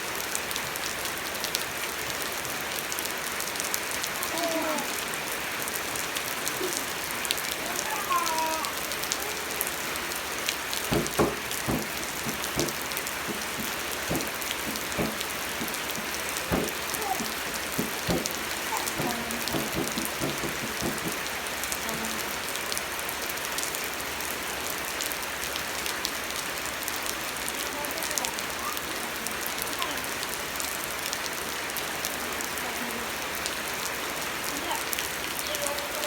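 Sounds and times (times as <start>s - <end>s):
steady rain falling: 0.0s - 36.0s
water drops striking surface: 10.5s - 22.2s.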